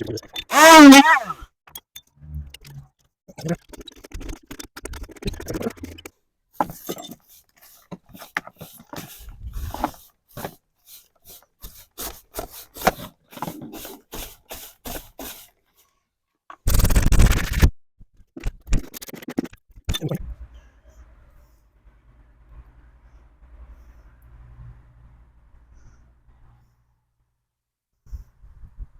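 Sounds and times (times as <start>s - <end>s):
hand tool scraping wood: 0.5s - 1.4s, 6.6s - 15.5s.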